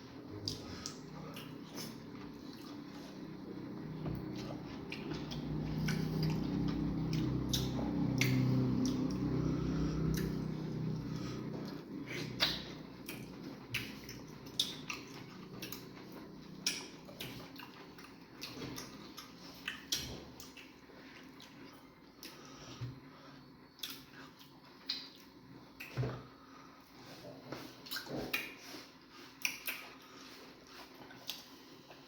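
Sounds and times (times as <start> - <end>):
wet chewing and lip smacks: 4.3 - 22.4, 23.7 - 26.0, 27.8 - 32.0.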